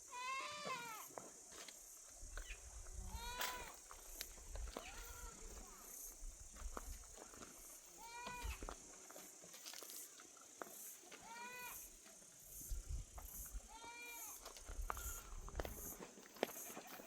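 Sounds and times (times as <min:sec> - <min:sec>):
goat bleating: 0:00.1 - 0:01.0.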